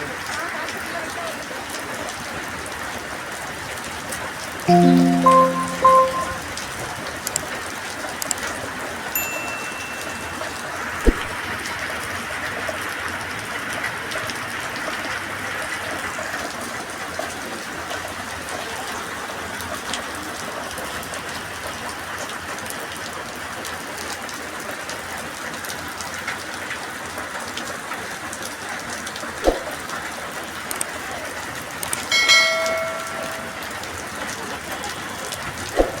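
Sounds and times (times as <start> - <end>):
short pitched tone: 4.7 - 6.5.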